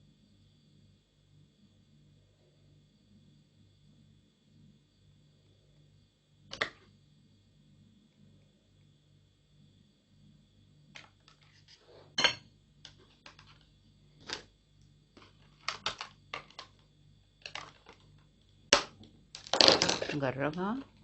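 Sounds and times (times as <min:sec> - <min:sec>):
plastic bottle pieces clicking: 0:15.6 - 0:16.7, 0:17.4 - 0:18.0, 0:18.8 - 0:20.2.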